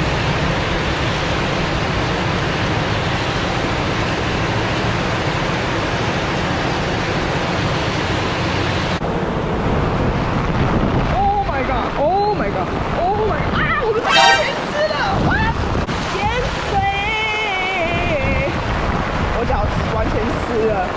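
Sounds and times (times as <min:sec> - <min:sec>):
heavy rain downpour: 0:15.9 - 0:20.9.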